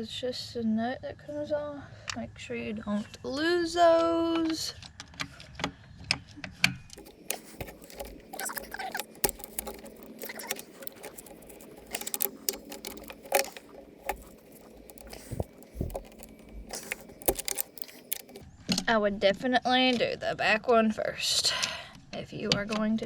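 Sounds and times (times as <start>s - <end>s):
hand tools clicking on metal: 7.0s - 18.4s.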